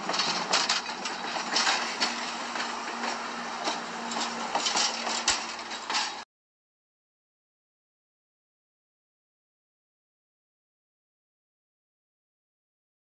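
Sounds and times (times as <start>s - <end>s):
steel wheels rushing on rail: 0.0s - 6.2s.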